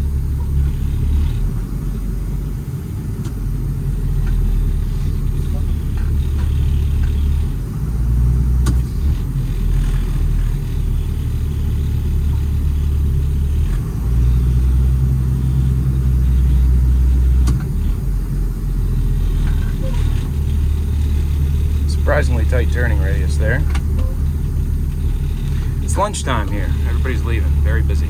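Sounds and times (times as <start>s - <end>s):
diesel engine droning in cab: 0.0s - 28.0s.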